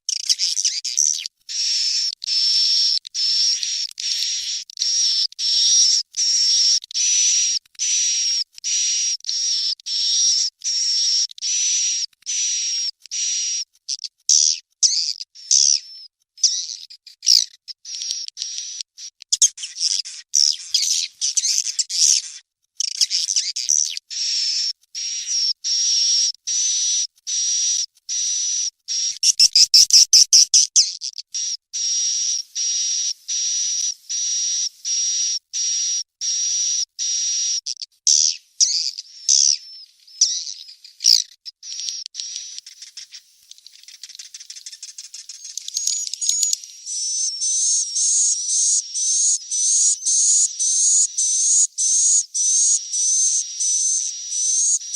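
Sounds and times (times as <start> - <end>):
clicking bird calls: 0.1 - 6.3, 40.2 - 46.7
swiftlet chick chirps: 17.3 - 36.4, 37.0 - 54.9.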